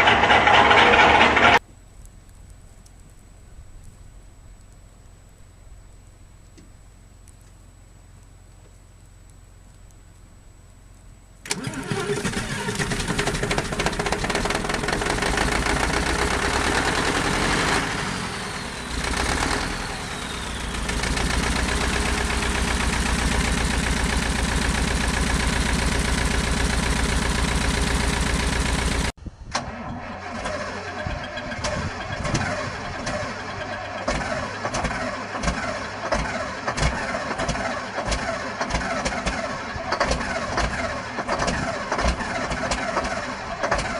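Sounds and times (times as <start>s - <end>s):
diesel engine starting and running: 0.0s - 1.6s, 11.4s - 43.9s
knocking diesel engine: 0.0s - 1.6s, 11.5s - 29.2s, 31.2s - 43.9s.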